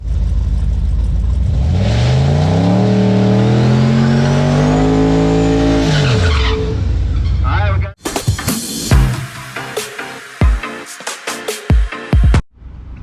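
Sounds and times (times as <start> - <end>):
truck engine revving: 0.0 - 7.9.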